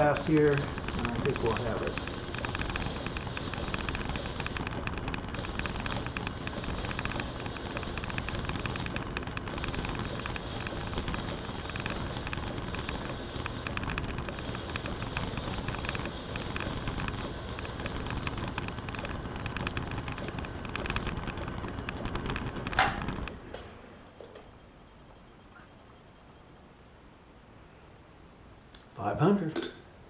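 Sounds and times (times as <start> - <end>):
metal lathe running: 0.0 - 23.3.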